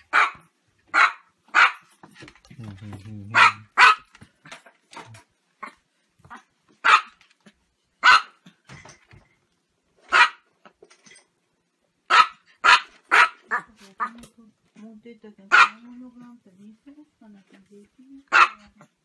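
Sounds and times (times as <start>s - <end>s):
small dog barking: 0.0s - 1.9s, 3.3s - 4.1s, 6.3s - 7.2s, 8.0s - 8.4s, 10.1s - 10.5s, 12.1s - 14.2s, 15.5s - 15.9s, 18.3s - 18.9s.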